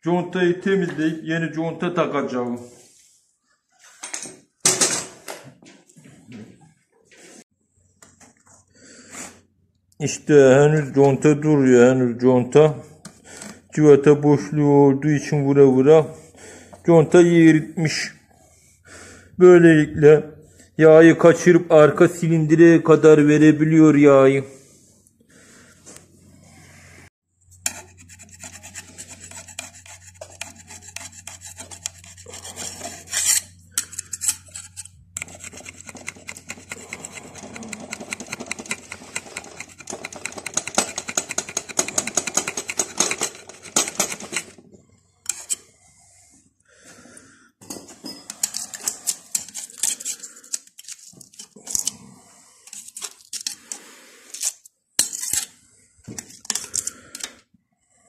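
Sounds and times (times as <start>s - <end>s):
hand tool scraping metal: 27.6s - 44.6s, 45.2s - 45.7s, 48.1s - 52.0s, 52.6s - 55.6s.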